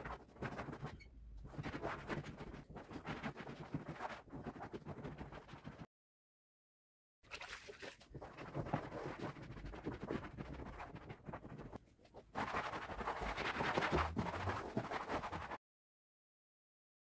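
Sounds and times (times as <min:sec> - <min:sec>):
rapid scrubbing and rubbing: 0:08.2 - 0:15.6.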